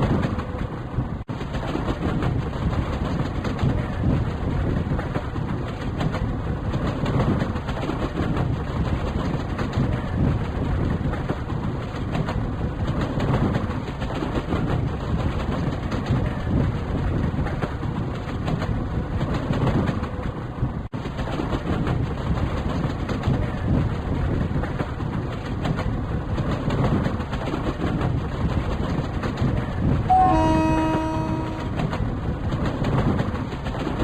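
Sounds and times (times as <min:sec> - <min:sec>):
train rumbling and rattling: 0:00.0 - 0:34.0
train horn: 0:30.1 - 0:32.0.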